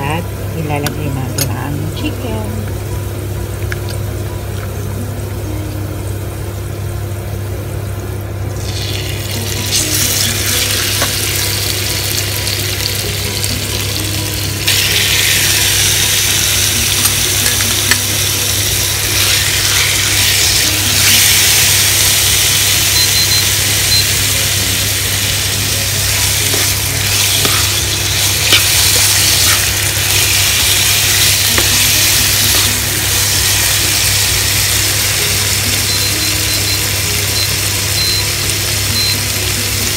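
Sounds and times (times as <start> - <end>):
chicken sizzling in oil: 8.1 - 39.9.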